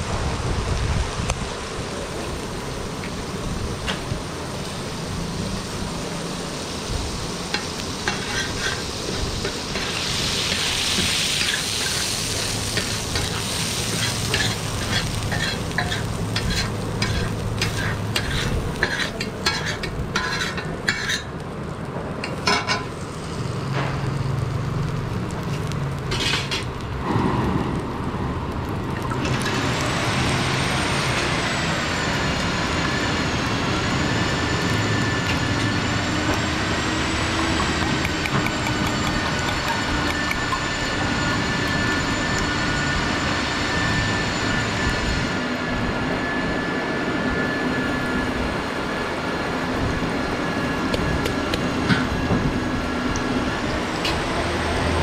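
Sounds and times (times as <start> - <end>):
food sizzling on a griddle: 0.4 - 27.1, 28.0 - 44.8
metal spatula scraping a griddle: 7.6 - 21.3, 26.1 - 26.7.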